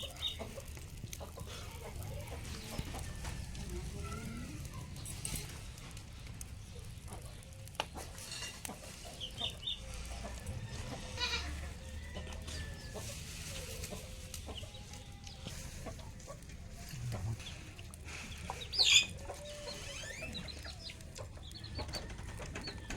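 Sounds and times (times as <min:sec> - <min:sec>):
chickens clucking: 0:00.0 - 0:22.9
goat bleating: 0:11.2 - 0:11.7
steady low rumble: 0:16.7 - 0:18.0.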